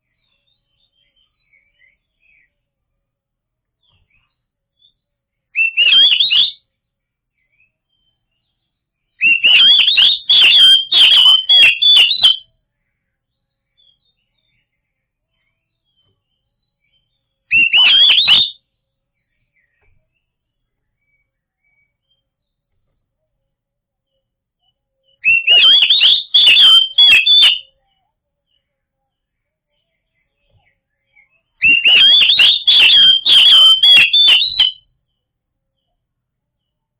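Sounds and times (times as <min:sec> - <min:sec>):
bird singing whistled phrases: 0:05.6 - 0:06.6, 0:09.2 - 0:12.4, 0:16.9 - 0:18.6, 0:25.1 - 0:27.8, 0:30.2 - 0:34.9.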